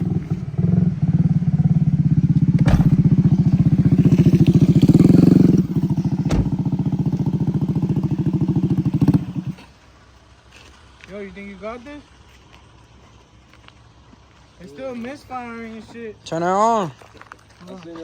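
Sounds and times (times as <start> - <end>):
moped engine revving: 0.0 - 9.6.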